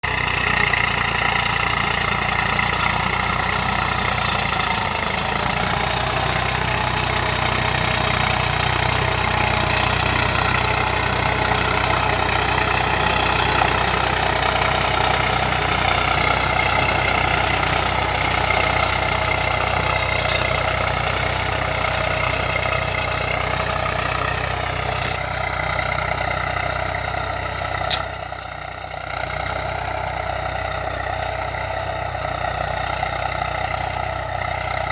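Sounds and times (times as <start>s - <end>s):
tractor diesel engine running: 0.0s - 34.9s
sharp click: 27.9s - 28.2s.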